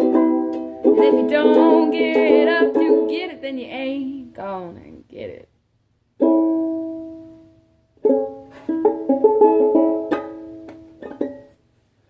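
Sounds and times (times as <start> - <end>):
plucked string instrument: 0.0 - 3.8, 6.2 - 11.6.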